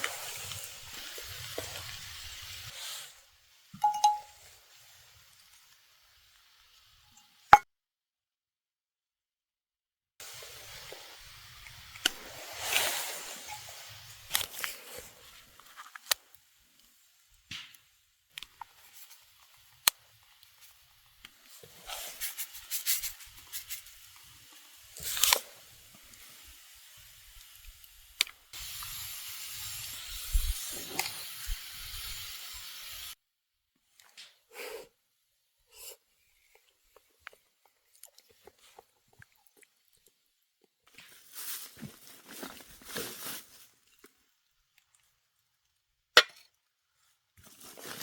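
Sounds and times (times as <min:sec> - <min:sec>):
steady hiss: 0:00.0 - 0:06.9, 0:10.2 - 0:15.7, 0:18.7 - 0:33.2
person chewing crunchy food: 0:36.5 - 0:40.1.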